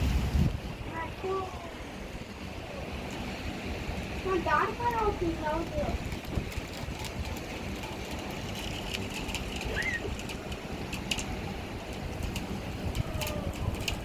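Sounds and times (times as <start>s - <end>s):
heavy rain: 0.0s - 14.0s
wind rumbling on microphone: 0.0s - 14.0s
raindrops ticking: 4.0s - 14.0s.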